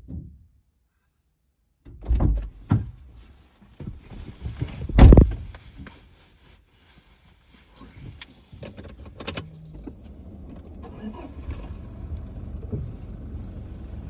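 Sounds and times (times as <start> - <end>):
heavy thumps and knocks: 3.8 - 5.6.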